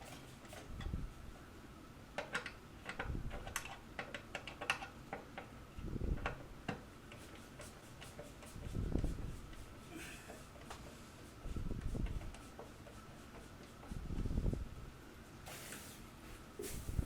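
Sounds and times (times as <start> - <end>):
sharp metal clicks and taps: 2.2 - 5.5.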